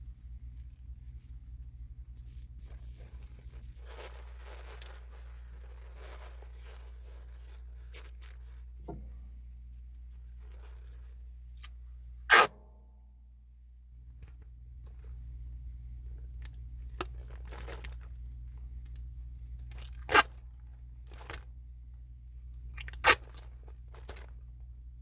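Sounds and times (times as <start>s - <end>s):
material scraping and rustling: 0.0s - 9.3s
steady low hum: 0.0s - 25.0s
material ripping: 2.3s - 8.7s, 19.6s - 20.4s, 22.7s - 24.4s.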